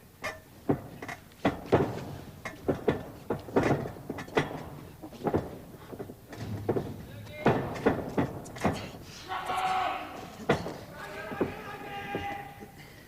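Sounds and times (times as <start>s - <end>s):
thuds and slaps on ring mat: 0.6s - 9.0s
crowd shouting: 9.1s - 12.7s.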